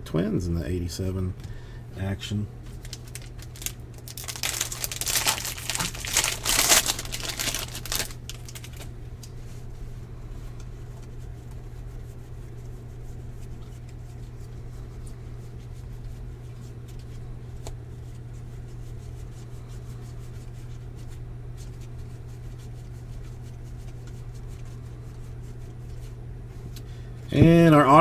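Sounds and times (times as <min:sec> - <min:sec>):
wrapper tearing and crinkling: 0:02.7 - 0:08.9.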